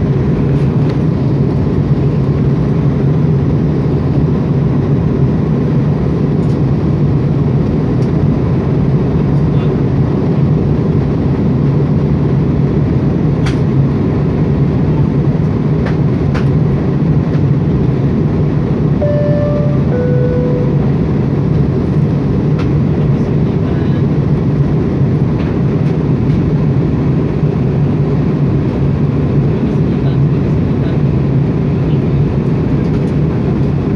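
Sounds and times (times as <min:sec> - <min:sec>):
airliner cabin engine drone: 0:00.0 - 0:33.9
two-note cabin chime: 0:19.0 - 0:21.2.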